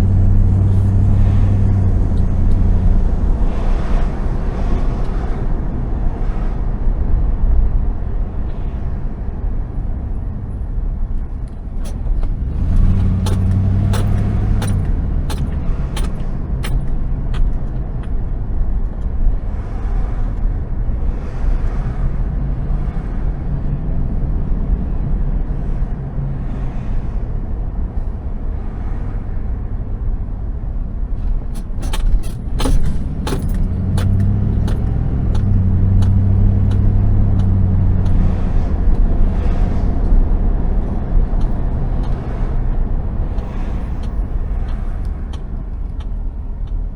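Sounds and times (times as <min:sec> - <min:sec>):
car engine and road noise: 0:00.0 - 0:46.9
sharp clicks and knocks: 0:11.2 - 0:18.2, 0:31.2 - 0:39.1, 0:41.3 - 0:46.8.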